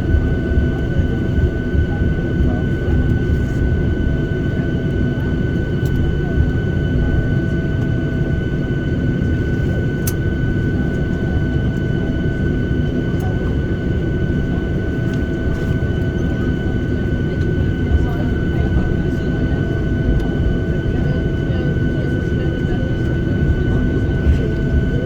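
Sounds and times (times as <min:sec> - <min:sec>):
airplane cabin low rumble: 0:00.0 - 0:25.0
jet engine high whine: 0:00.0 - 0:25.0.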